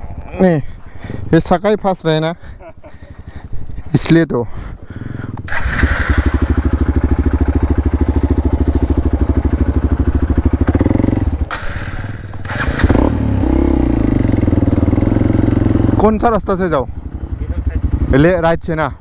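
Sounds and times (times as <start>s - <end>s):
motorcycle engine under load: 5.0s - 18.4s.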